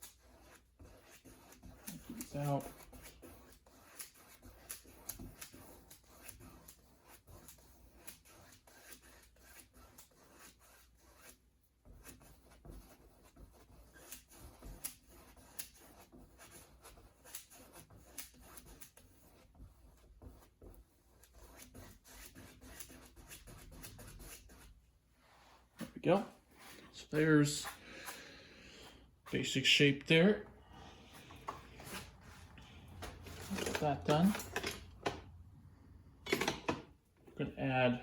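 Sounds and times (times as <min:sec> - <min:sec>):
paintbrush scratching on canvas: 0:00.0 - 0:25.9.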